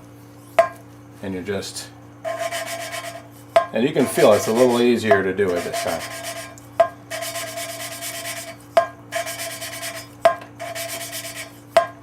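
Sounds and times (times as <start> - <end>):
gritty rubbing of valve lapping: 2.3 - 3.3, 3.9 - 11.6.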